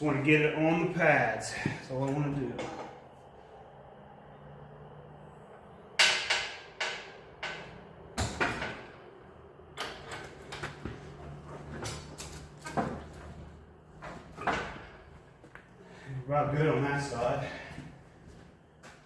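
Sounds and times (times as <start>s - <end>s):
metal clanks and knocks: 6.0s - 9.0s, 9.8s - 15.2s.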